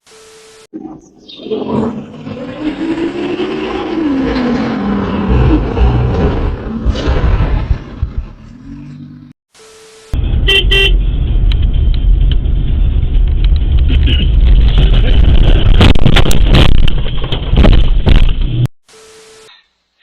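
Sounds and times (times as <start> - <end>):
vehicle and road rumble: 0.8 - 9.4, 10.2 - 18.7
car horn toots: 10.2 - 11.2
knocks and crackles: 11.4 - 18.7.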